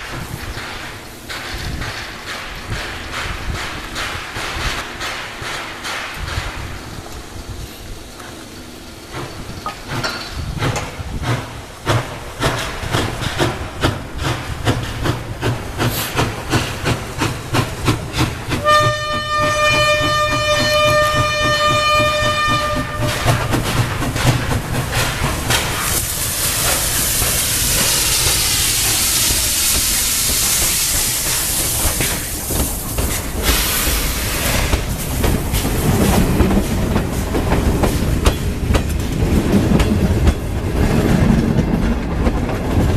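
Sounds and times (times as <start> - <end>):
steam locomotive exhaust beats: 0.0 - 42.9
train rumble and hiss: 0.0 - 42.9
steam whistle: 18.6 - 23.4.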